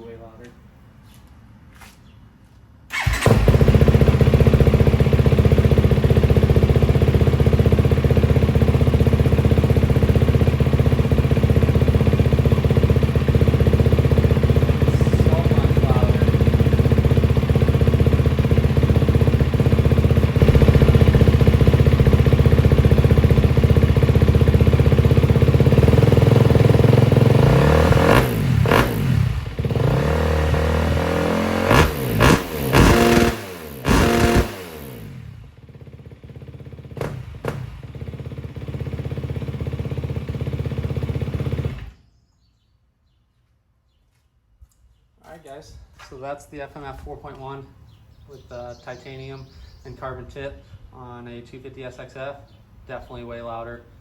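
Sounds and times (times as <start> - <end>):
motorcycle engine idling: 2.9 - 42.2.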